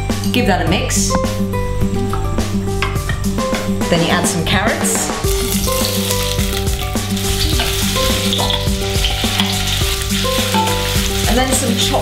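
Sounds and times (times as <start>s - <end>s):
carrots sizzling in hot oil: 5.3s - 12.0s.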